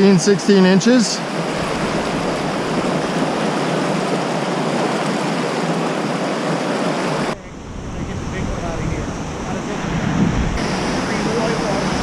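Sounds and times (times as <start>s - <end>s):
river whitewater rushing: 0.0s - 7.4s, 10.6s - 12.0s.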